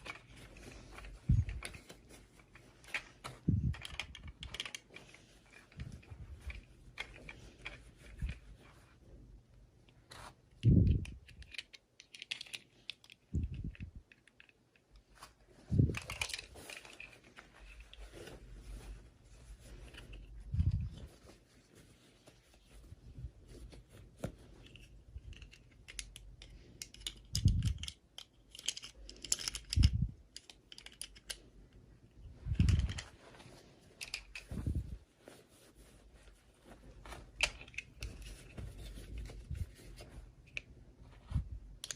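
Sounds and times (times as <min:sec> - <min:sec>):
plastic packaging clicking and crinkling: 0:00.0 - 0:08.5, 0:10.9 - 0:18.4, 0:24.0 - 0:31.8, 0:32.4 - 0:35.0, 0:36.6 - 0:40.8.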